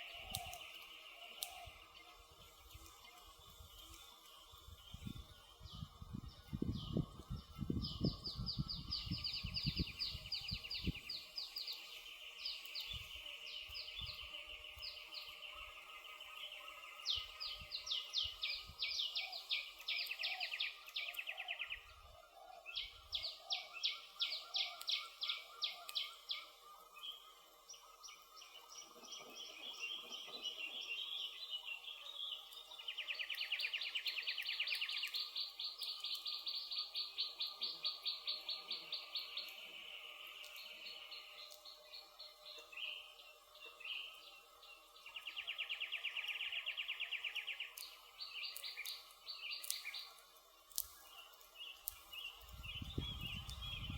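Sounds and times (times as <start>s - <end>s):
songbirds singing rapid trills: 0.0s - 53.9s
campfire crackling: 46.7s - 53.9s.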